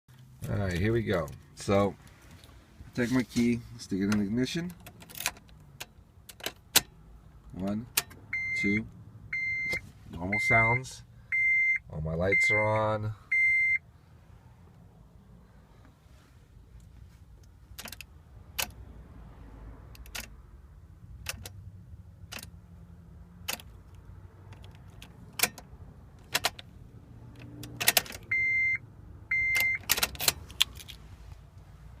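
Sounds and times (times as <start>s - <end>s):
car key and ignition clicking: 4.1s - 7.0s, 17.7s - 18.8s, 19.9s - 20.4s, 21.2s - 21.6s, 22.2s - 22.6s, 23.4s - 26.7s, 27.3s - 28.6s, 29.3s - 31.0s
dashboard chime beeps: 9.4s - 10.8s, 11.4s - 12.8s.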